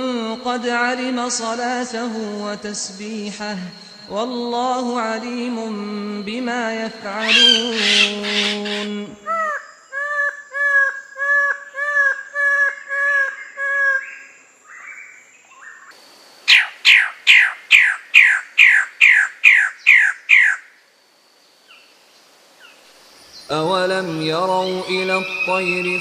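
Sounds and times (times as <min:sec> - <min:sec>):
bird falling calls: 0:07.1 - 0:15.9, 0:16.5 - 0:20.7
bird whistled notes: 0:07.2 - 0:08.5.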